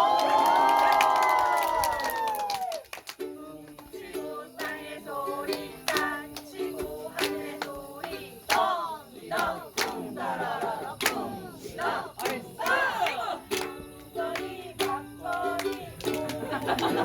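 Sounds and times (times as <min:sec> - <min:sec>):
group shouting: 0:00.0 - 0:02.7
group singing: 0:03.2 - 0:17.0.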